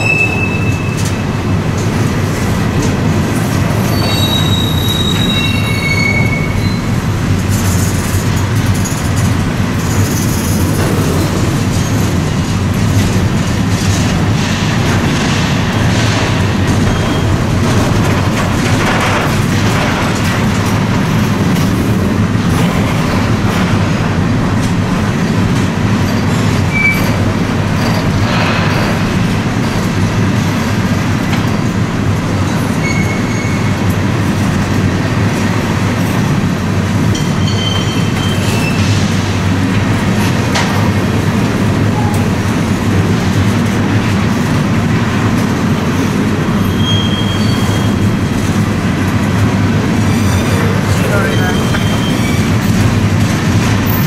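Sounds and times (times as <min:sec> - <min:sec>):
train wheels rumbling on track: 0:00.0 - 0:54.0
high-pitched squeaks: 0:03.8 - 0:06.9.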